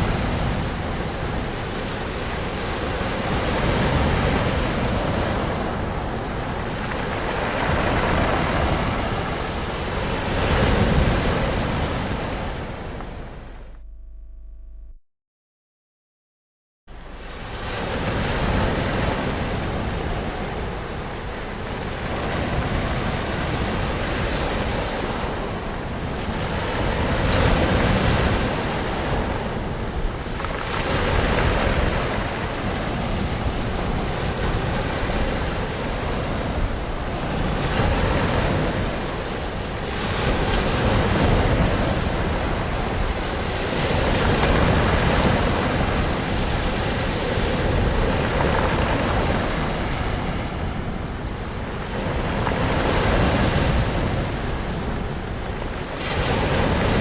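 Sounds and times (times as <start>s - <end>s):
waves breaking: 0.0s - 13.8s, 16.9s - 57.0s
deep rumble of surf: 0.0s - 15.0s, 16.9s - 57.0s.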